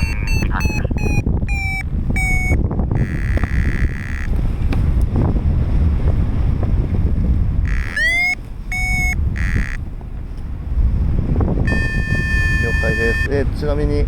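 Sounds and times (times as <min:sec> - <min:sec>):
held beep: 0:00.0 - 0:04.3, 0:07.7 - 0:09.8, 0:11.7 - 0:13.3
wind buffeting microphone: 0:00.0 - 0:14.0
rising electronic tone: 0:07.7 - 0:09.8.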